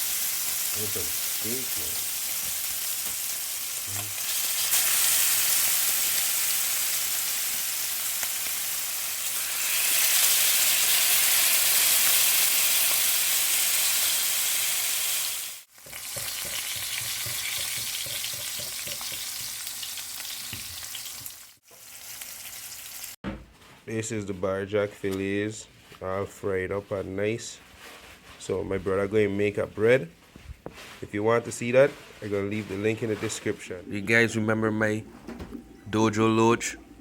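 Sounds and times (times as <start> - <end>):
fish frying in hot oil: 0.0 - 23.2.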